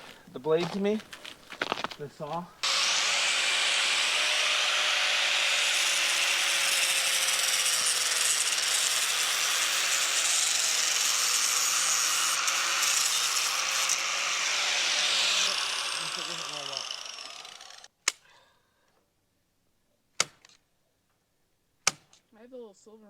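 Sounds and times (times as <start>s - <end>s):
electric power saw cutting: 2.6s - 17.9s.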